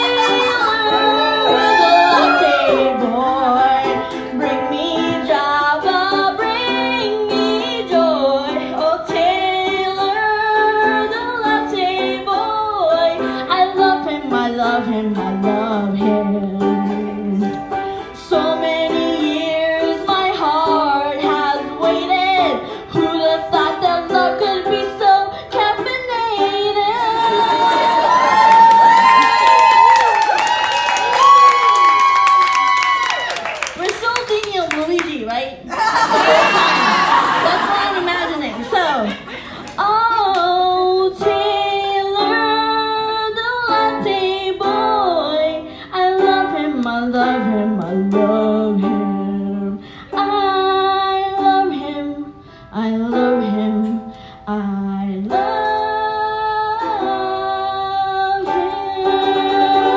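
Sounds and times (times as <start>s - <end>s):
plucked strings: 0.0s - 27.1s, 37.4s - 59.9s
person singing comic song: 0.0s - 28.0s.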